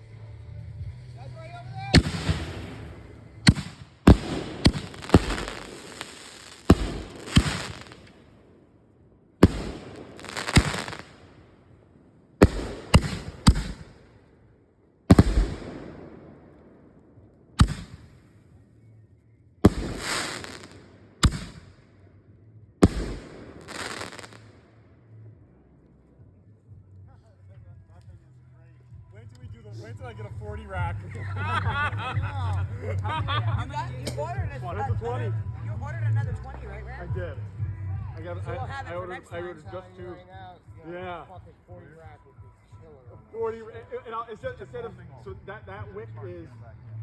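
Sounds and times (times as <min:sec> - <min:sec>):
firework mortar bangs: 0:01.9 - 0:08.3, 0:09.4 - 0:11.4, 0:12.4 - 0:14.1, 0:15.1 - 0:16.7, 0:17.6 - 0:18.2, 0:19.7 - 0:21.8, 0:22.8 - 0:24.5
firework crackle and echo: 0:01.9 - 0:14.3, 0:15.1 - 0:17.0, 0:17.6 - 0:18.4, 0:19.6 - 0:22.0, 0:22.8 - 0:24.8.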